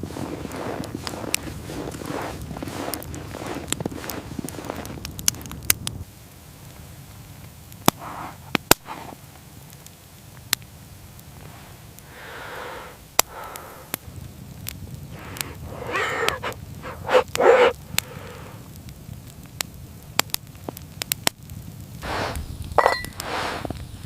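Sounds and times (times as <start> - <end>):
rustling footsteps: 0.0 - 5.5
fire popping: 0.0 - 24.0
wood fire crackling: 0.0 - 24.0.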